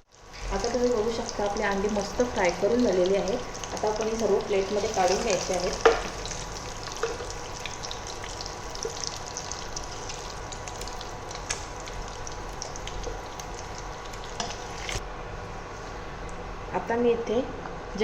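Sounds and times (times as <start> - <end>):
hot oil sizzling in a pot: 0.0 - 15.0
small crackling pops: 10.5 - 12.0.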